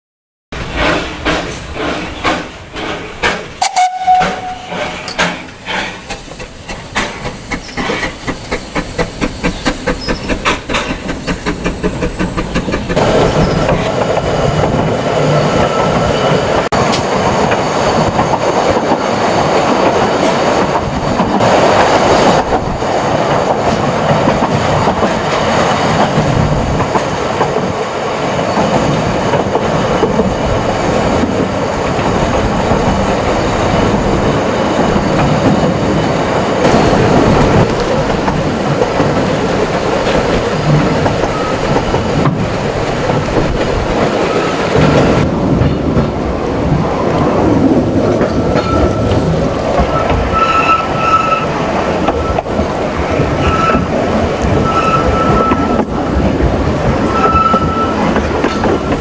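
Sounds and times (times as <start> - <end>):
steam locomotive chuffing: 0.6 - 27.7
train running noise: 0.6 - 59.0.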